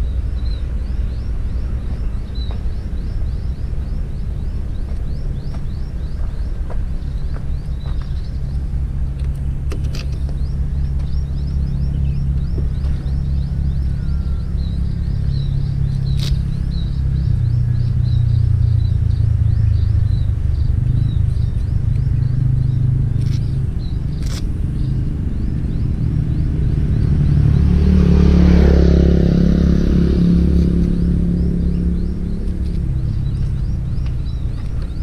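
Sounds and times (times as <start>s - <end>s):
vehicle passing: 7.8s - 35.0s.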